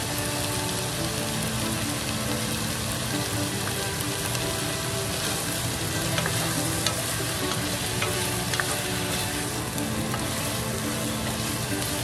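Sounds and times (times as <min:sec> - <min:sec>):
meat and onions sizzling in a pan: 0:00.0 - 0:12.0
spatula scraping a pan: 0:05.1 - 0:12.0
spatula tapping a pan: 0:05.3 - 0:09.3.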